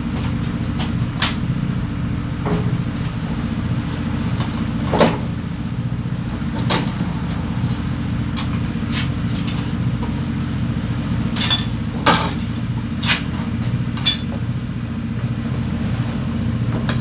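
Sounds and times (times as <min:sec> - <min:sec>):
scooter engine idling: 0:00.0 - 0:17.0
sharp metallic clinks: 0:11.4 - 0:11.9, 0:14.0 - 0:14.4.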